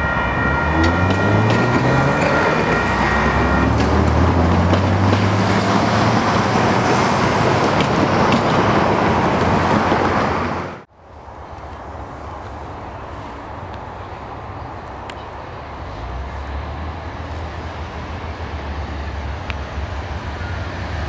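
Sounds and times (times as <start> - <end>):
high steady ringing tone: 0.0 - 4.7
freight train cars rumbling: 0.0 - 21.0.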